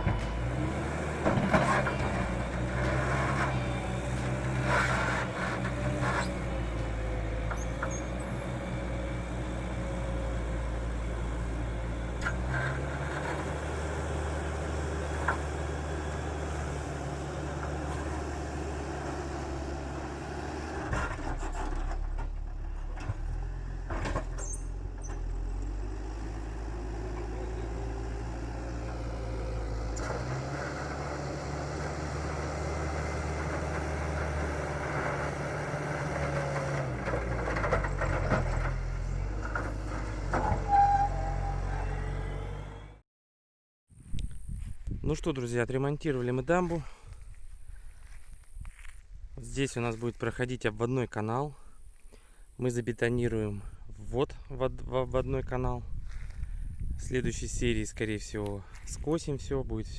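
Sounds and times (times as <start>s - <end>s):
heavy machinery engine running: 0.0s - 43.0s.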